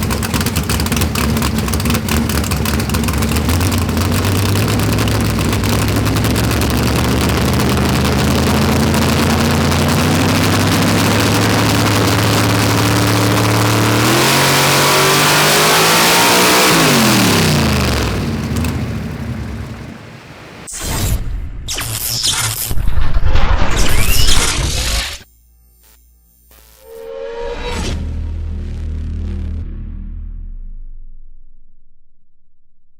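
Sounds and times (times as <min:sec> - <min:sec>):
car engine revving at full throttle: 0:00.0 - 0:20.6.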